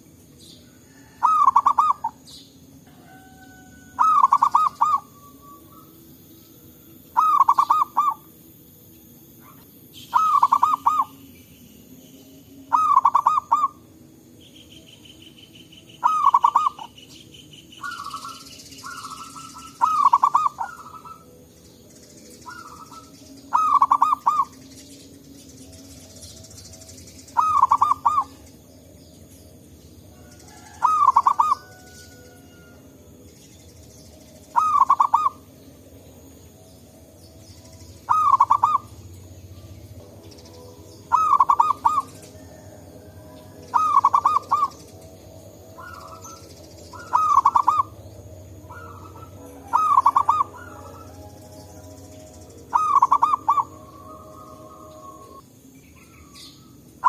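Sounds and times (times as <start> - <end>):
dove cooing: 0.7 - 6.0, 7.1 - 8.3, 9.4 - 11.2, 12.7 - 13.8, 16.0 - 17.0, 17.8 - 21.4, 22.4 - 24.6, 27.3 - 28.5, 30.2 - 32.8, 34.5 - 35.6, 38.1 - 39.0, 41.1 - 44.9, 45.7 - 51.6, 52.6 - 55.4.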